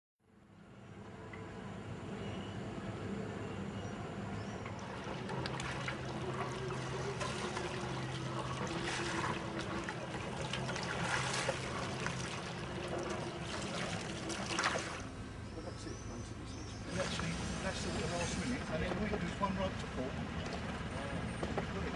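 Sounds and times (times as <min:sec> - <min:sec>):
low steady hum: 0:00.3 - 0:21.9
water splashing along a hull: 0:04.6 - 0:15.3.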